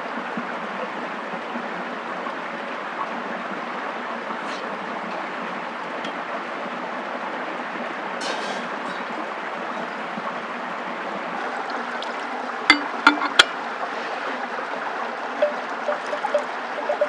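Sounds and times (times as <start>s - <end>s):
running water rushing: 2.2s - 17.0s.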